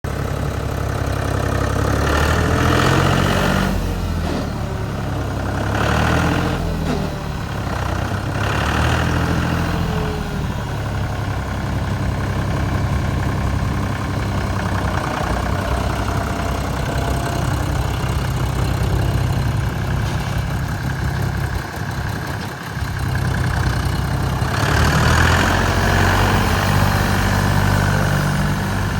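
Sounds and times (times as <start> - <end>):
tractor diesel engine revving: 0.1 - 28.9.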